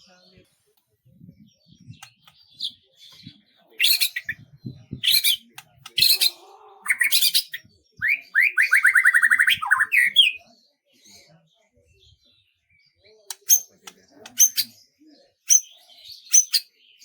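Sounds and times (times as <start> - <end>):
songbirds chirping: 0.0 - 17.0
harsh bird calls: 1.7 - 10.5, 13.3 - 14.9
fast bird trill: 5.0 - 10.4, 14.4 - 14.7.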